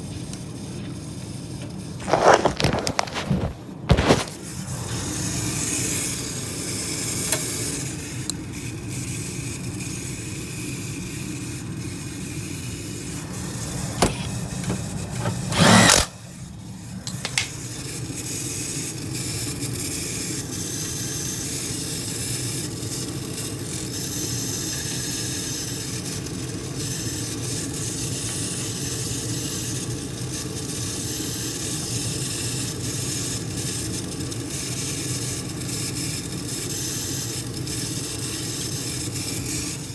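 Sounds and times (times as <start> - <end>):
motor grinding: 12.9 - 16.4.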